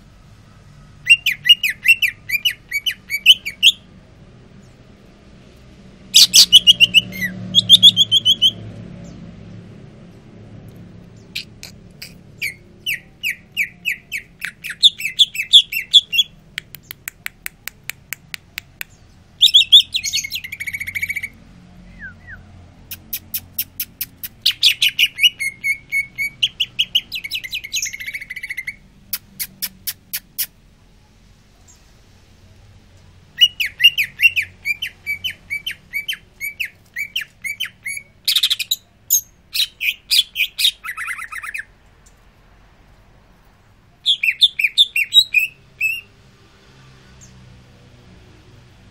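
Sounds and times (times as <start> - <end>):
bird singing chirps and clicks: 10.7 - 21.4, 22.0 - 30.6, 33.4 - 42.3.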